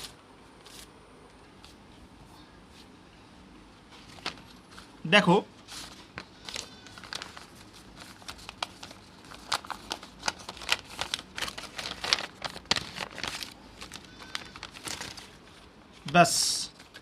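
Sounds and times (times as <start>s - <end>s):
packaging crinkling and rustling: 3.9s - 4.9s, 5.7s - 15.7s.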